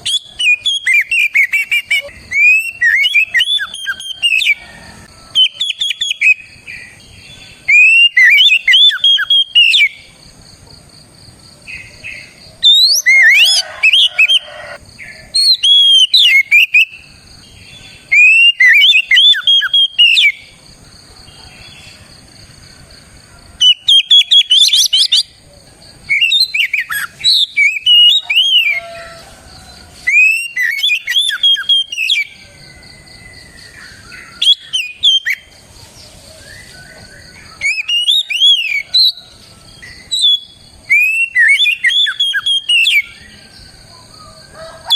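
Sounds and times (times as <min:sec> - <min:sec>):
magpie-robin singing: 0:00.0 - 0:04.6, 0:05.3 - 0:10.0, 0:11.7 - 0:14.8, 0:15.4 - 0:17.0, 0:17.7 - 0:20.4, 0:23.6 - 0:25.3, 0:26.1 - 0:29.1, 0:30.0 - 0:32.3, 0:33.8 - 0:35.5, 0:36.4 - 0:39.2, 0:39.8 - 0:43.3.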